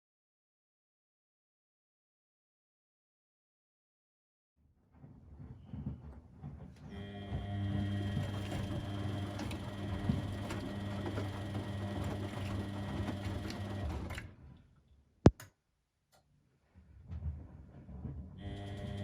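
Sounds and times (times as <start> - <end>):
laundry machine motor humming: 6.8 - 14.2, 18.4 - 19.0.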